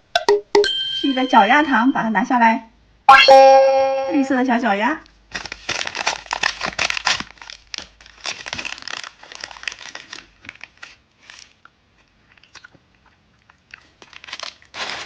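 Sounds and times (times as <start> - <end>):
candy wrapper crinkling: 5.3 - 12.8, 13.7 - 15.0.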